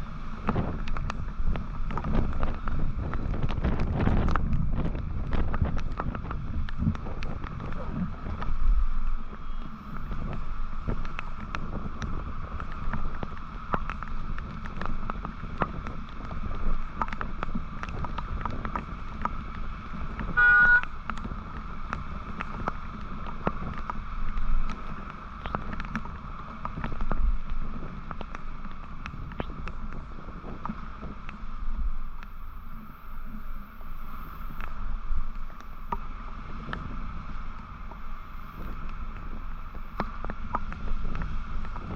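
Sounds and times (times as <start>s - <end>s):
wind and road rush: 0.0s - 41.9s
vehicle horn honking: 20.4s - 20.9s.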